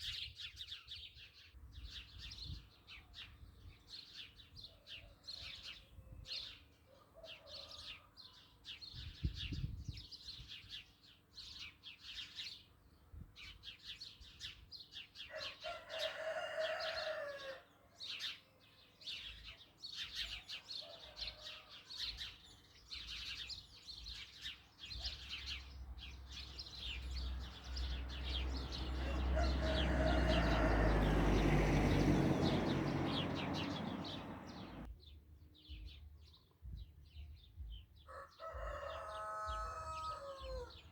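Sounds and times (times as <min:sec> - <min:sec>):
rooster crowing: 0:15.3 - 0:17.6, 0:27.8 - 0:34.9, 0:38.1 - 0:40.8
small birds chirping: 0:22.0 - 0:34.9.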